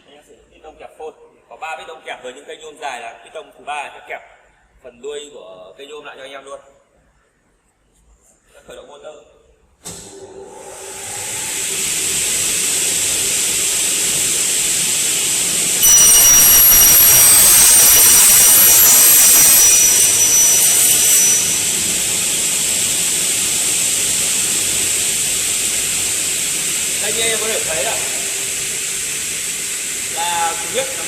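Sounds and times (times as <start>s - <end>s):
cutting saw whining: 10.7s - 31.0s
saw blades cutting aluminium: 11.8s - 31.0s.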